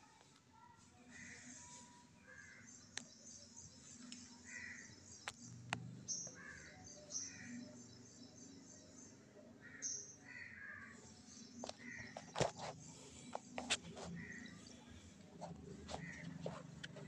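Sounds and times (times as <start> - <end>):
faint bird calls: 4.1 - 5.4, 9.6 - 17.0.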